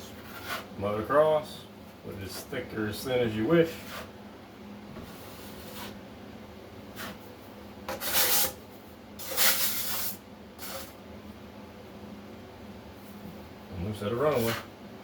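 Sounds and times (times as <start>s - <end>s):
trowel scraping joint compound: 0.0s - 0.7s, 7.9s - 8.6s, 9.2s - 11.0s.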